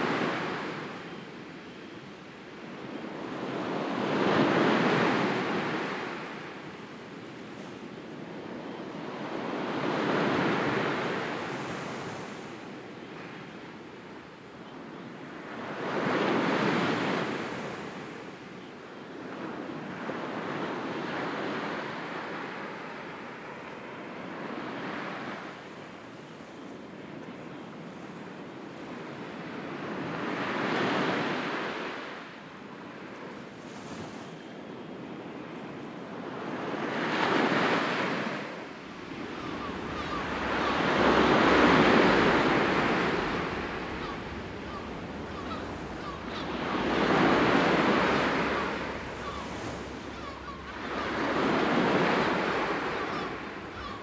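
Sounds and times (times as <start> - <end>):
sea waves surging: 37.3 - 54.0.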